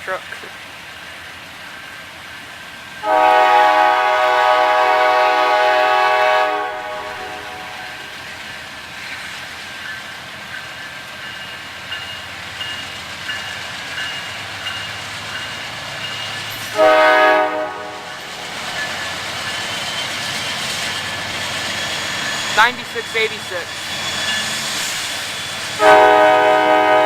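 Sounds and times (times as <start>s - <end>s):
freight train rolling past: 0.0s - 27.0s
multi-note train horn: 3.0s - 8.2s, 16.6s - 18.6s, 25.8s - 27.0s.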